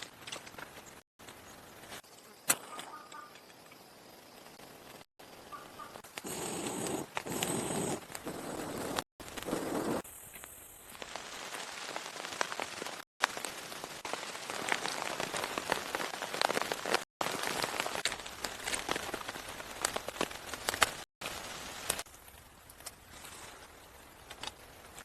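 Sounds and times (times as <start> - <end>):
rain pattering: 6.2 - 23.1.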